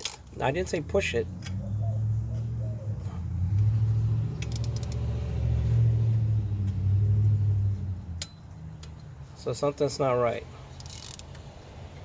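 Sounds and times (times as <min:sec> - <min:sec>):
metal ratchet clicks: 0:00.0 - 0:00.3, 0:04.3 - 0:05.1, 0:10.8 - 0:11.5
vehicle engine rumble: 0:00.0 - 0:12.0.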